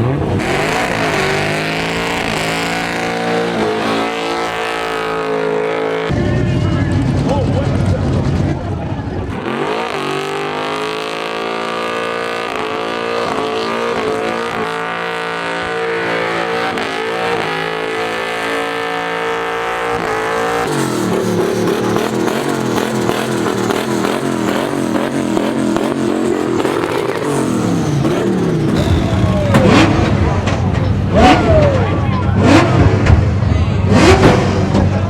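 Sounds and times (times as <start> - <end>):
race car engine at high revs: 0.0 - 35.0.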